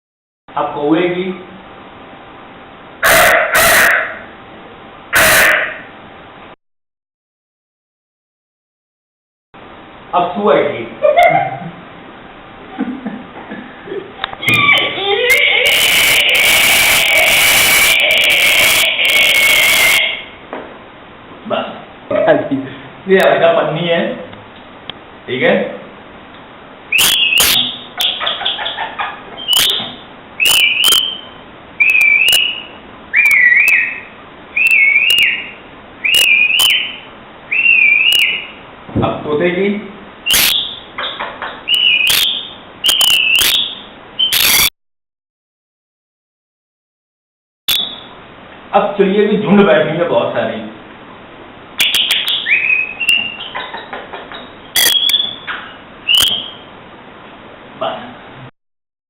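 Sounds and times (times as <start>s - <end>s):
man whistling a bird call: 15.7s - 20.1s, 26.9s - 27.8s, 29.4s - 38.5s, 40.3s - 40.7s, 41.7s - 44.7s, 47.7s - 48.0s, 54.8s - 55.5s, 56.1s - 56.6s
mouth clicks: 27.0s - 28.2s, 29.4s - 31.2s, 31.8s - 34.0s, 36.1s - 36.9s, 40.3s - 41.2s, 41.8s - 44.7s, 47.7s - 48.0s, 51.8s - 56.5s
sharp clicks: 42.9s - 43.6s, 44.3s - 44.7s, 51.8s - 52.3s, 54.3s - 55.6s.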